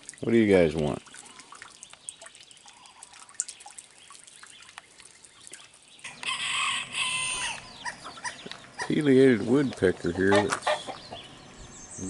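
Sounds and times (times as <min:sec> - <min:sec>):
loud harsh chicken calls: 0:06.0 - 0:09.0
chickens clucking: 0:06.0 - 0:11.6.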